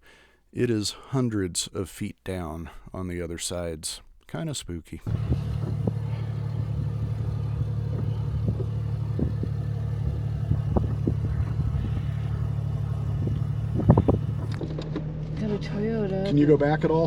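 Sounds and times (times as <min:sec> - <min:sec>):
car engine at low revs: 0:05.0 - 0:17.0.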